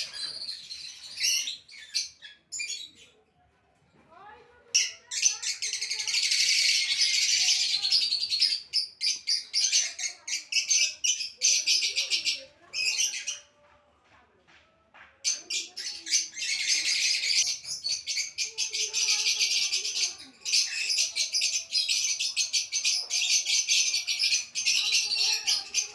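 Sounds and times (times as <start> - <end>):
small birds chirping and chattering: 0.0 - 25.9.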